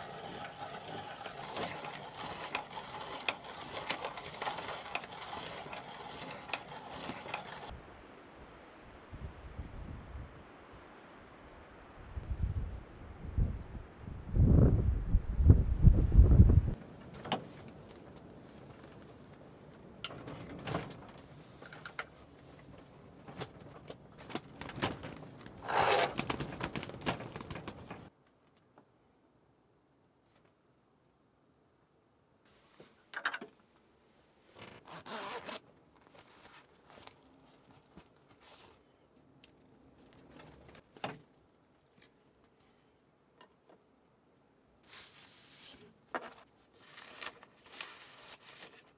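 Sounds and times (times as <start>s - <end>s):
faint clicks and rustles: 0.0s - 7.7s, 16.8s - 29.0s, 34.5s - 42.8s.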